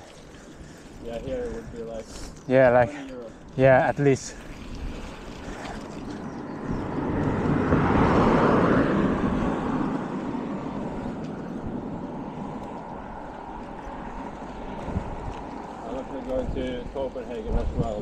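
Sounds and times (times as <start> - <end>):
vehicle passing: 4.2 - 17.4.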